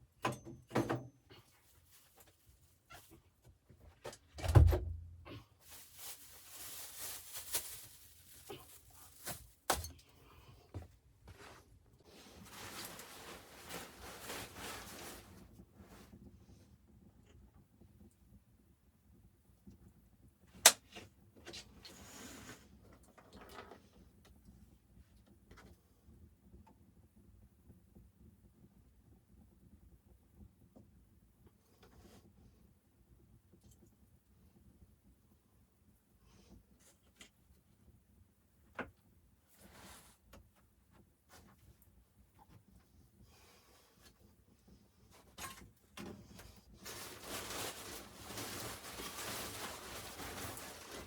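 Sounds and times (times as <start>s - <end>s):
rustling: 5.6s - 9.7s, 11.3s - 16.2s, 45.1s - 51.0s.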